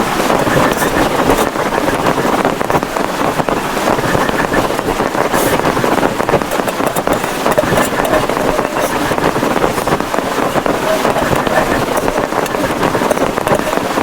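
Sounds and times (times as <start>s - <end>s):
heavy rain on plastic tarpaulin: 0.0s - 14.0s.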